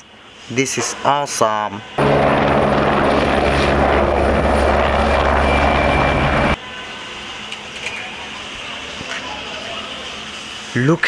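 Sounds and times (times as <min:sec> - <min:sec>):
helicopter rotor and engine hum: 0:01.9 - 0:06.6.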